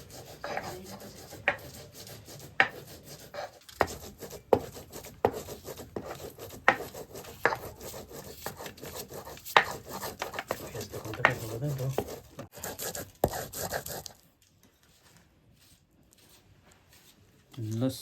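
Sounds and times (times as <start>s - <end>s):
knife scraping board: 0.0s - 14.1s
knife chopping on cutting board: 3.8s - 13.5s.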